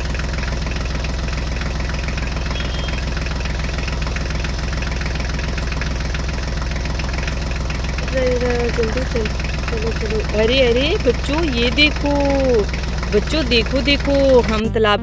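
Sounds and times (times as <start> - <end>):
tractor engine knocking steadily: 0.0 - 15.0.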